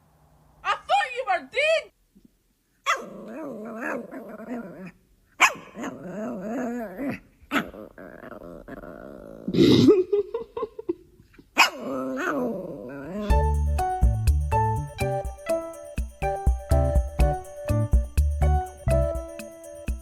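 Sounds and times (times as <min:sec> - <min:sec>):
dog barking: 0:02.8 - 0:03.1, 0:05.4 - 0:06.0, 0:11.6 - 0:11.8
dog growling whines: 0:02.9 - 0:05.0, 0:05.6 - 0:10.1, 0:11.6 - 0:13.3.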